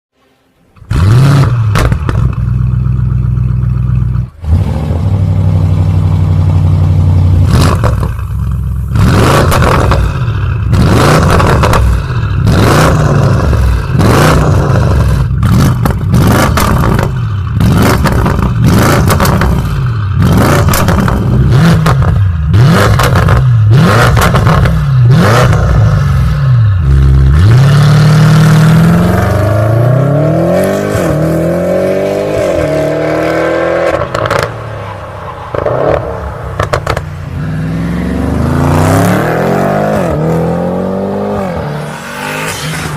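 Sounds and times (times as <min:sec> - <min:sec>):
car engine idling and revving: 0:00.2 - 0:42.9
exhaust pops and crackles: 0:01.7 - 0:02.6, 0:09.4 - 0:10.2, 0:11.2 - 0:12.1, 0:15.4 - 0:19.7, 0:20.6 - 0:22.2, 0:36.6 - 0:37.1.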